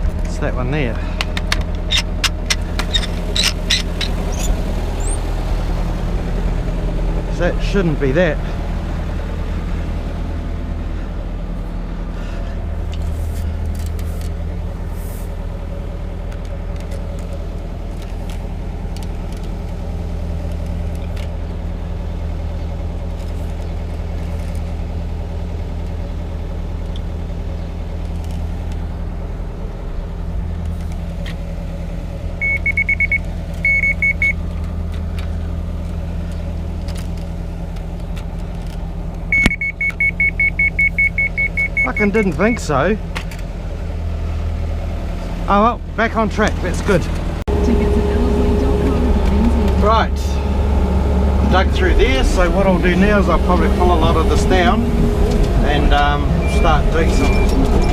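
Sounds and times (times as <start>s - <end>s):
excavator diesel engine running: 0.0s - 57.9s
high alarm beeping: 32.4s - 34.4s, 39.3s - 42.6s, 56.2s - 57.9s.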